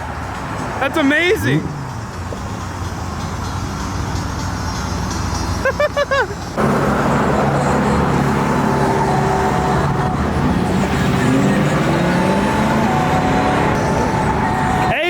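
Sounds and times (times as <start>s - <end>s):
traffic noise: 0.0s - 15.0s
car engine running: 6.5s - 15.0s.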